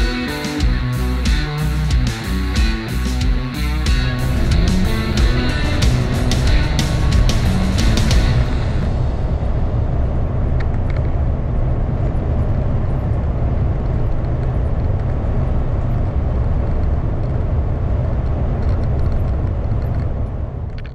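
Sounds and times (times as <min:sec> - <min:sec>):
diesel engine rumbling: 0:00.0 - 0:20.8.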